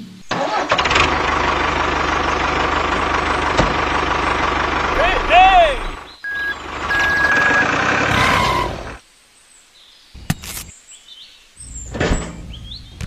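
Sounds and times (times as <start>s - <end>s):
engine running: 0.3s - 9.0s
short high-pitched beeps: 6.2s - 7.8s.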